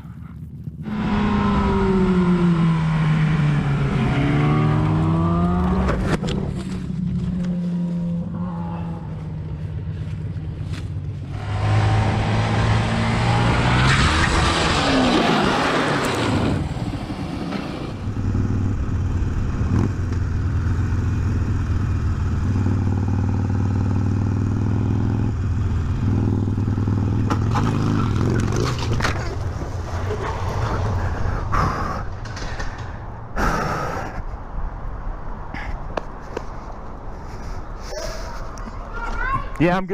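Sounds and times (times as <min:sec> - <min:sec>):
motorcycle engine running: 0:18.0 - 0:30.3
sharp knocks and scraping clatter: 0:27.1 - 0:31.2, 0:32.1 - 0:33.2.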